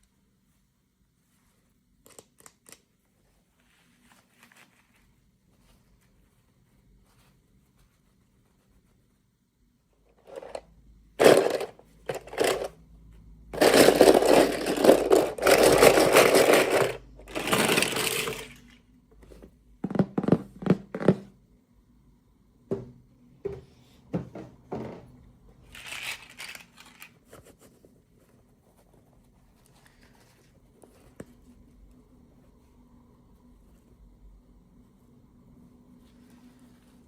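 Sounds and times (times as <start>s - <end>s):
plastic packaging crinkling: 25.7s - 27.3s.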